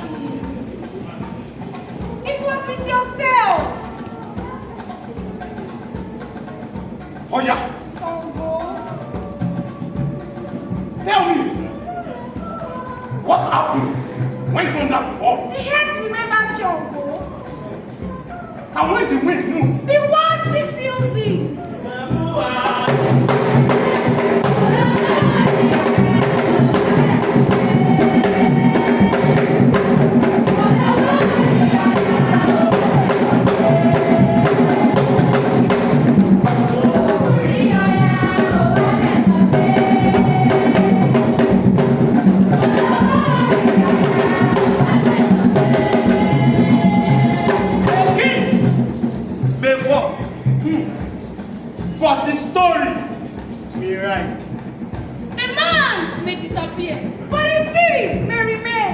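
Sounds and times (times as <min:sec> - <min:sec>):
group singing: 0:00.0 - 0:53.5
steady percussion rhythm: 0:00.0 - 0:58.9.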